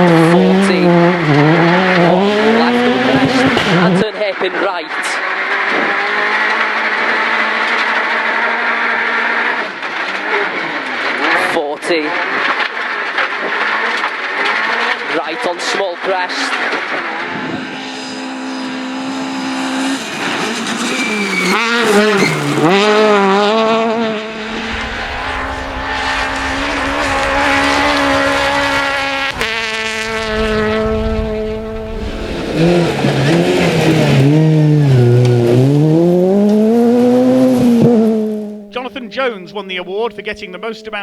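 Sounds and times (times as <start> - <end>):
rally car engine revving: 0.0 - 41.0.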